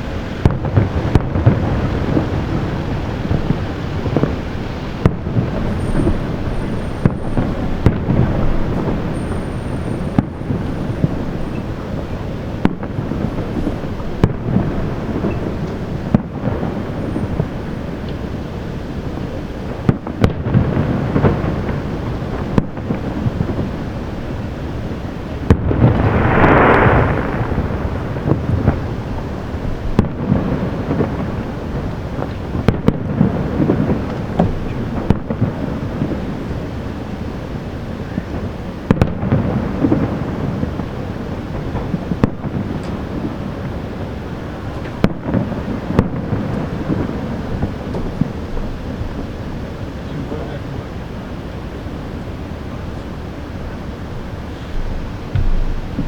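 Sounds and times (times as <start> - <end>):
distant fireworks booms and crackles: 0.0 - 56.0
loud fireworks bangs: 0.0 - 56.0.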